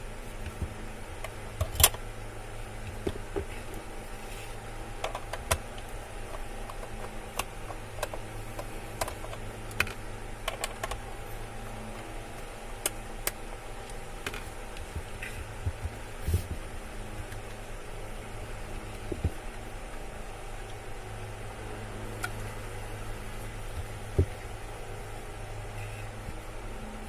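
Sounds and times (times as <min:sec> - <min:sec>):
steady low hum: 0:00.0 - 0:27.0
plastic parts clicking: 0:01.2 - 0:02.0, 0:05.0 - 0:11.0.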